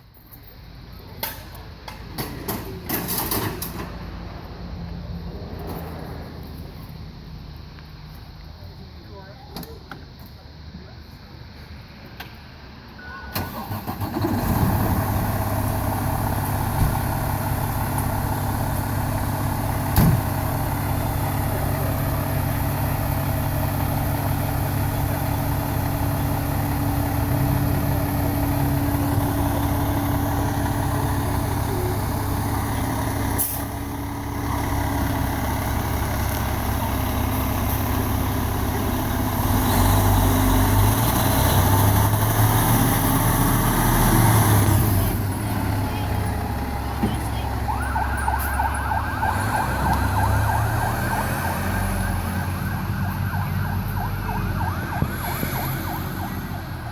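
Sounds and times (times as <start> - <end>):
diesel engine running: 13.1 - 56.9.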